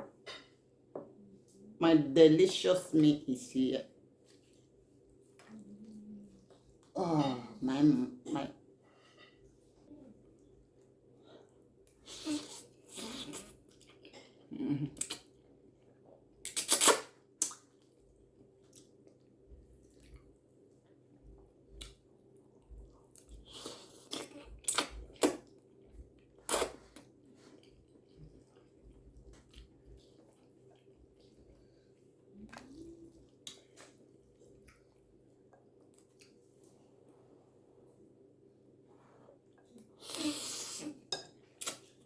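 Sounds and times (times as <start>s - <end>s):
wet chewing with clicks: 14.9s - 15.4s, 16.4s - 36.8s.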